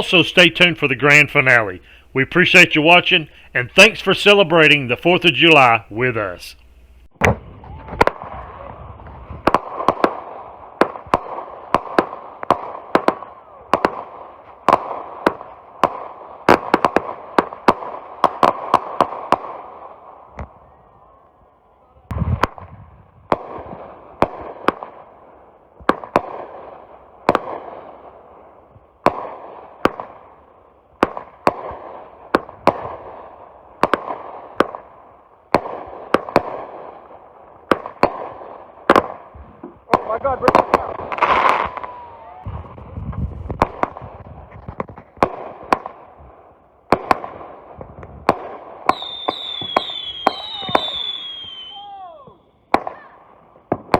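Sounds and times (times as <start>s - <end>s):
fireworks crackling: 0.0s - 53.9s
fireworks reports: 0.0s - 53.9s
low thump: 7.2s - 8.1s.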